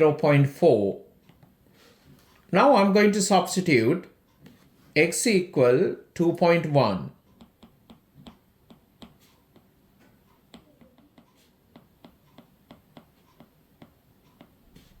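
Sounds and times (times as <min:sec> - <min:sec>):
faint sharp tapping clicks: 0:07.1 - 0:15.0.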